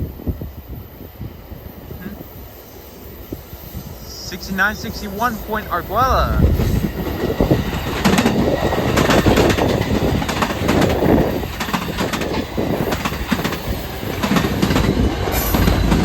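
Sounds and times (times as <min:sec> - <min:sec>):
train cars rumbling past: 0:00.0 - 0:16.0.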